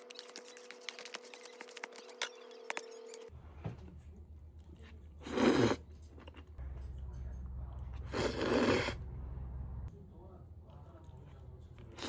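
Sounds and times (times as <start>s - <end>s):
steady hum: 5.9s - 11.9s.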